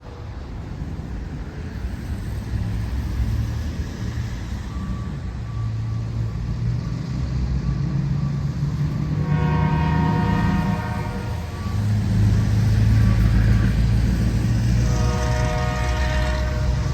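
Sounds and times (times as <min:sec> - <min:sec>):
train locomotive rumble: 0:00.0 - 0:16.9
train horn chord: 0:09.1 - 0:12.2, 0:14.7 - 0:16.9.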